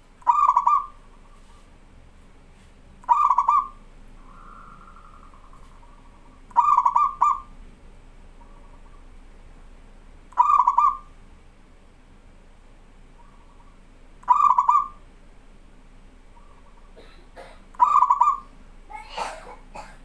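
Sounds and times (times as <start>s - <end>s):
dove cooing: 0.2s - 1.7s, 3.0s - 7.5s, 10.4s - 11.1s, 13.2s - 15.0s, 16.4s - 19.9s.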